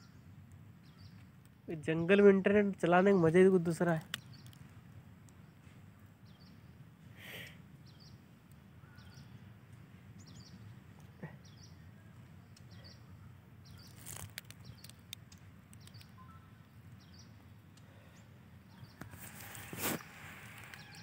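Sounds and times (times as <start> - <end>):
bird chirping: 0.0 - 21.0
sharp clicks: 4.0 - 5.4, 14.0 - 16.2.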